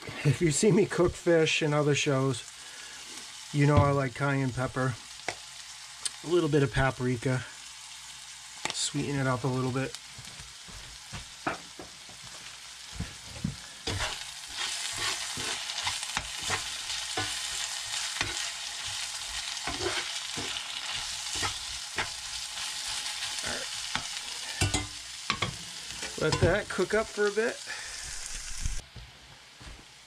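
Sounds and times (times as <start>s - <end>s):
potatoes sizzling in a skillet: 0.0s - 28.8s
metal spatula scraping and clinking: 13.8s - 22.3s, 23.3s - 26.6s.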